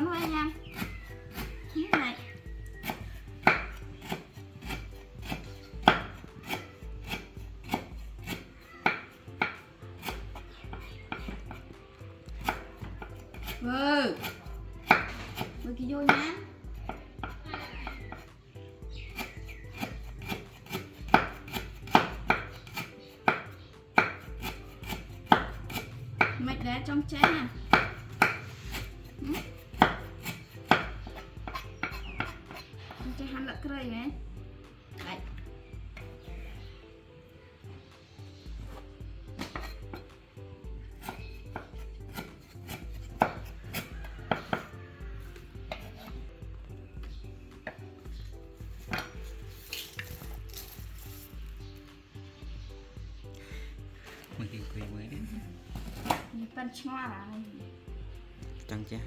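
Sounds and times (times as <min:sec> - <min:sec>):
sharp knocks on hard surface: 0:27.2 - 0:28.5, 0:29.5 - 0:32.6.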